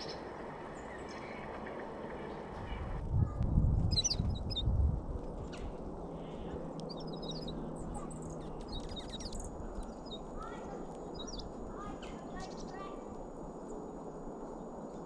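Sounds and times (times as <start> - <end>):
small songbirds chirping: 0.0 - 3.0, 3.9 - 4.7, 5.5 - 13.0.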